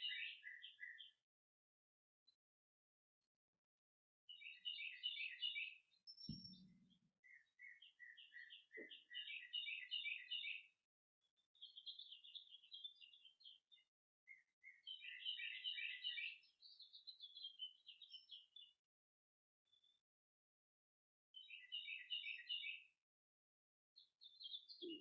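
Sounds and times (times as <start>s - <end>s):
songbirds singing: 0.0s - 1.2s, 4.3s - 18.8s, 19.7s - 20.0s, 21.3s - 23.0s, 24.0s - 25.0s
soft low thump: 6.3s - 6.8s.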